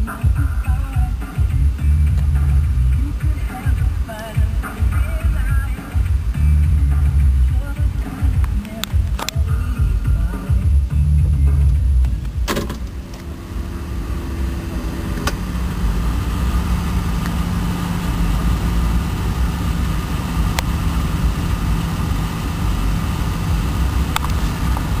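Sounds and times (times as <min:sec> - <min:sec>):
car engine idling: 0:00.0 - 0:25.0
brief clicks: 0:08.6 - 0:09.4.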